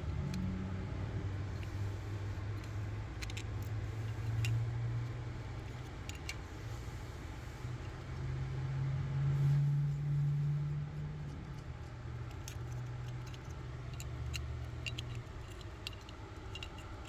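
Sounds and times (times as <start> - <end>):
metallic clicks and clinks: 2.5 - 4.7, 11.2 - 17.0.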